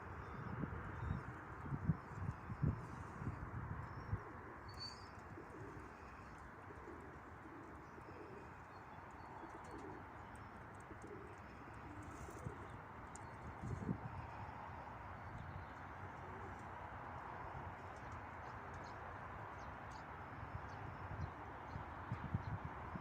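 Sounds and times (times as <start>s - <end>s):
wind buffeting microphone: 0.1s - 4.4s, 22.1s - 23.0s
pigeons cooing: 4.0s - 14.0s.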